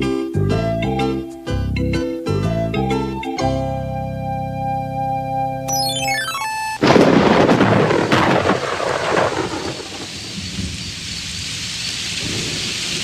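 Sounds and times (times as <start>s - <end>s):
cartoon music chord: 5.7s - 6.9s
thunderclap: 6.8s - 11.0s
heavy rain: 6.8s - 13.0s.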